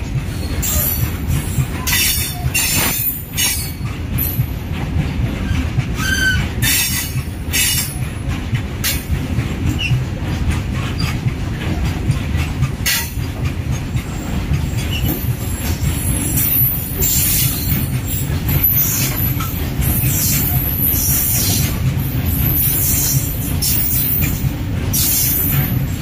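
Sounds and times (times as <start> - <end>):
heavy rumble of wheels on rail: 0.0 - 26.0.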